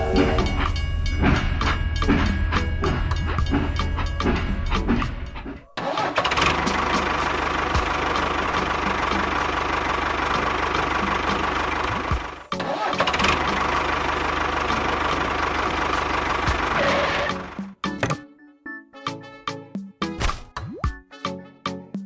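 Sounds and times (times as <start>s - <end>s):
small engine running: 5.8s - 17.6s.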